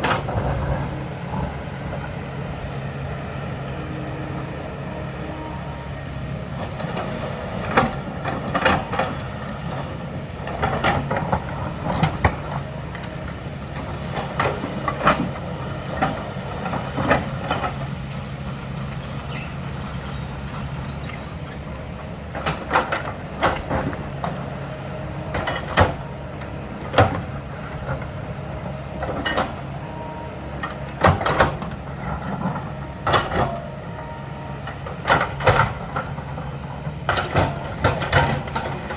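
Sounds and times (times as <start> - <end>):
diesel earthmoving machine running: 0.0 - 38.9
faint high squeal: 18.1 - 22.0.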